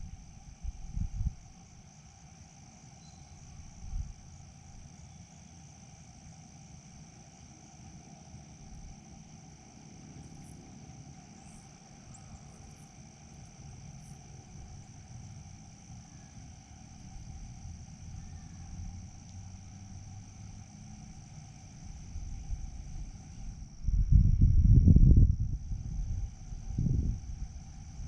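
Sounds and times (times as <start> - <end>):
insects trilling: 0.0 - 28.0
low rumble: 22.1 - 27.6.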